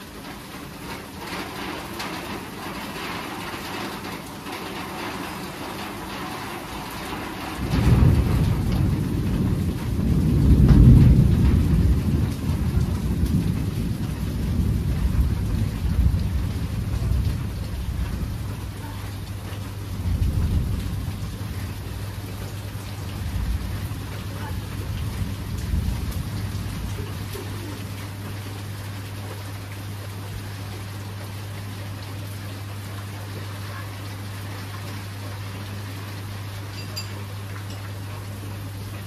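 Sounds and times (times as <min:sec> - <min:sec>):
steady rain: 0:00.0 - 0:39.0
rolling thunder: 0:04.7 - 0:28.0.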